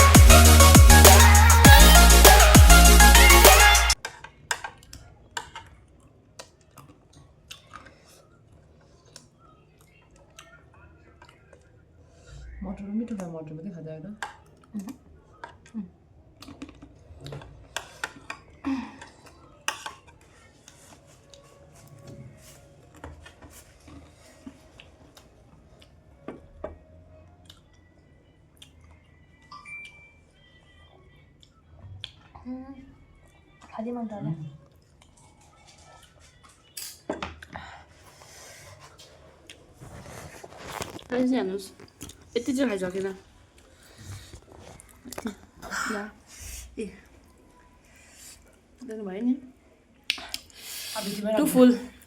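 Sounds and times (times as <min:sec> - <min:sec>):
chewing crisp snack: 0:04.7 - 0:11.8, 0:14.2 - 0:18.5, 0:19.1 - 0:26.2, 0:27.2 - 0:30.0, 0:34.6 - 0:37.0, 0:38.8 - 0:41.1, 0:41.7 - 0:42.4, 0:43.5 - 0:45.6.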